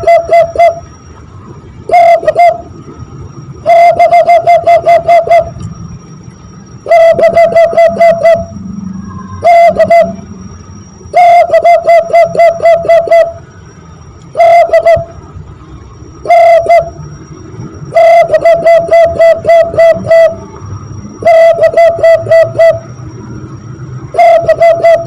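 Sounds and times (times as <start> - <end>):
hand-blown dove call imitation: 0.0 - 0.9, 1.9 - 2.7, 3.6 - 5.6, 6.8 - 10.2, 11.1 - 13.4, 14.3 - 15.2, 16.2 - 17.0, 17.9 - 20.5, 21.2 - 22.9, 24.1 - 25.0.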